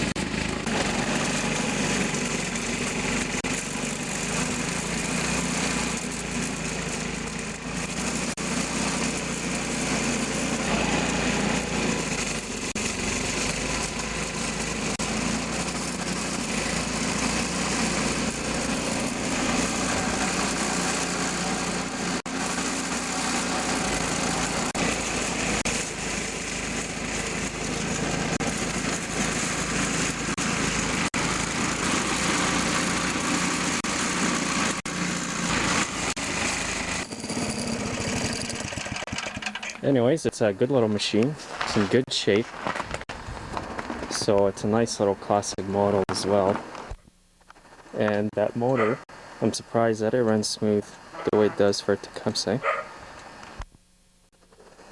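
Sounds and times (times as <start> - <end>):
snowblower engine running: 0.0 - 40.0.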